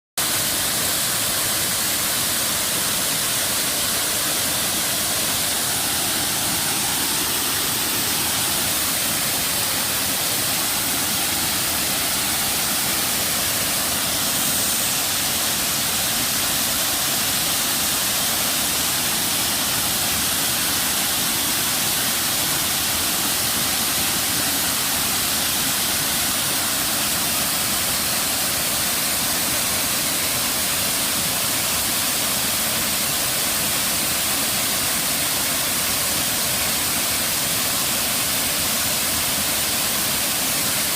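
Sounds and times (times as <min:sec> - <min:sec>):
waterfall pouring: 0:00.2 - 0:32.6.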